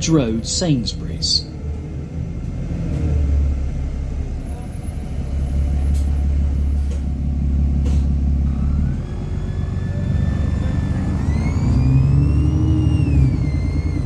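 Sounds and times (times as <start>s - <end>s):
bus engine rumbling: 0.0s - 14.0s.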